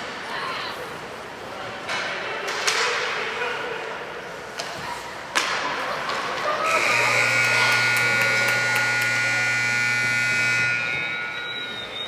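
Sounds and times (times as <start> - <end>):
electric buzzer: 6.6 - 11.8.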